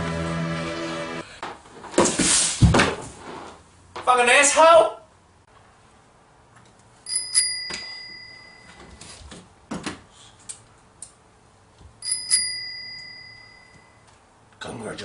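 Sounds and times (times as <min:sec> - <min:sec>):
small bell double ding: 0:07.1 - 0:08.8, 0:12.0 - 0:14.0.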